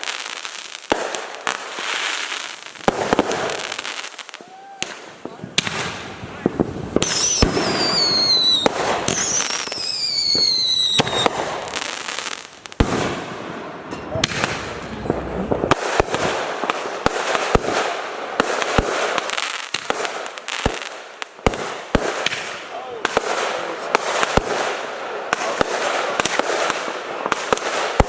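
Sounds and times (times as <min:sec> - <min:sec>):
whistling firework: 0:00.0 - 0:13.4
firework bangs and crackling pops: 0:00.0 - 0:28.0.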